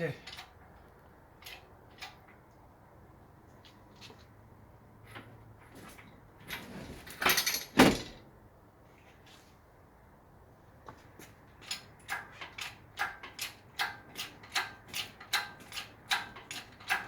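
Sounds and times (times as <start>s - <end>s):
metal parts knocking and clanking: 0.2s - 2.4s, 6.5s - 8.2s, 11.6s - 17.0s.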